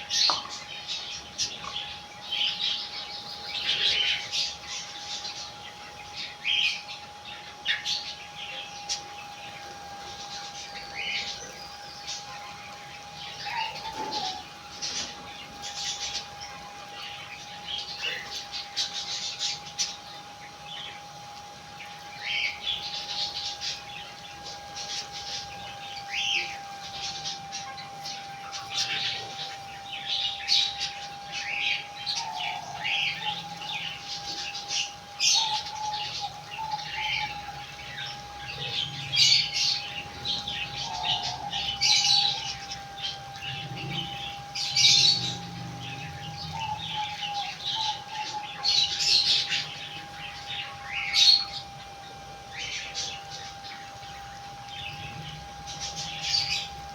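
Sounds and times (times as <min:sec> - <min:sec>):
faint steady hum: 0:00.0 - 0:56.9
pet birds chirping: 0:00.0 - 0:56.9.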